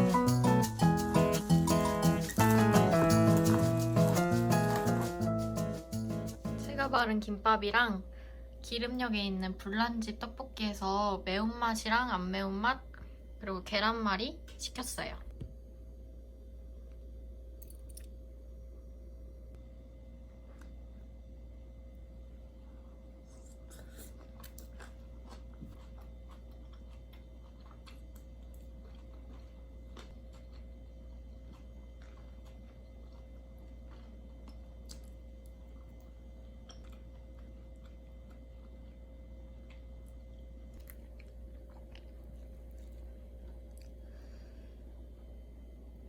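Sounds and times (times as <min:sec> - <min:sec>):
person chewing food: 0:22.6 - 0:44.4.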